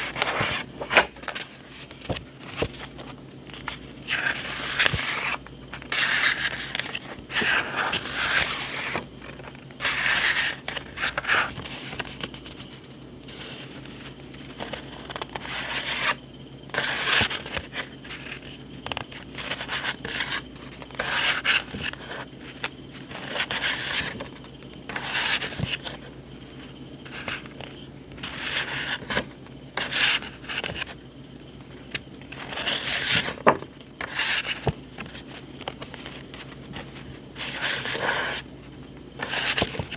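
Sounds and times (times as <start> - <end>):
paper sheets rubbing and sliding: 0.0 - 9.0, 27.0 - 30.9, 32.3 - 38.5, 39.2 - 39.9.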